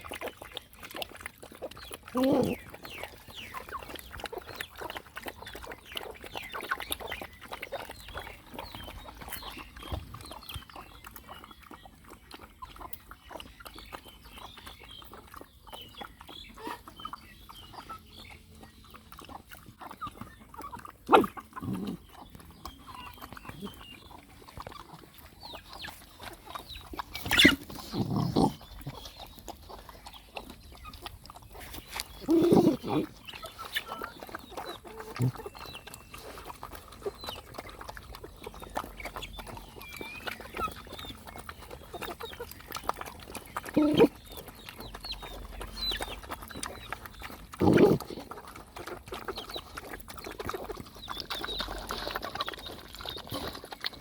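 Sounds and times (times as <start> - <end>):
puppies eating and nursing: 0.0 - 54.0
dog grunts or yelps: 2.1 - 2.6, 21.0 - 22.1, 32.2 - 33.2, 43.7 - 44.2, 47.5 - 48.3.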